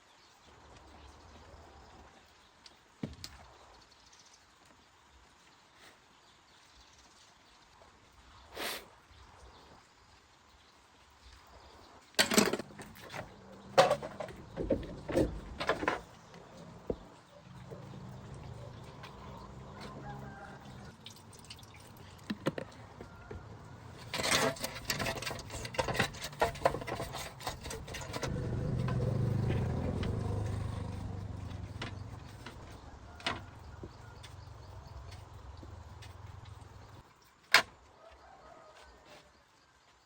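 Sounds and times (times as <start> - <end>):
hard objects knocking and clattering: 12.2 - 18.0, 22.3 - 29.0.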